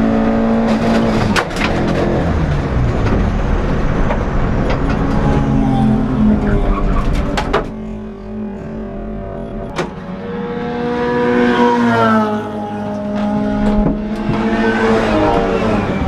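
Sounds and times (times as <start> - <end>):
race car engine revving: 0.0 - 16.0.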